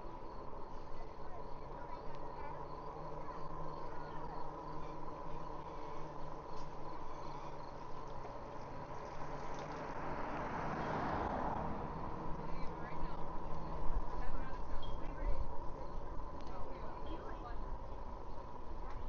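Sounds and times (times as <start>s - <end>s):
electric bike motor whining: 0.0s - 19.0s
low wind: 0.0s - 19.0s
road rumble: 0.0s - 19.0s.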